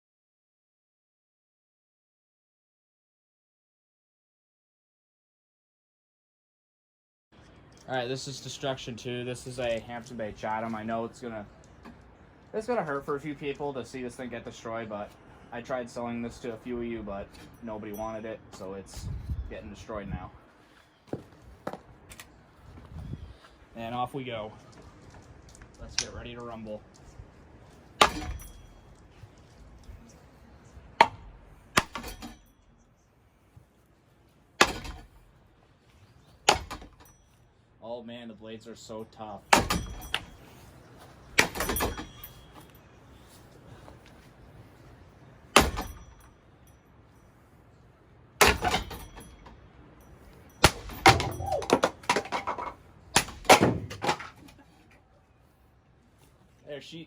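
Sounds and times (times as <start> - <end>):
ceiling fan being smashed: 28.0 - 28.7, 34.6 - 35.2, 39.5 - 40.3, 41.4 - 42.3, 45.5 - 46.2, 48.4 - 49.5, 50.5 - 54.5.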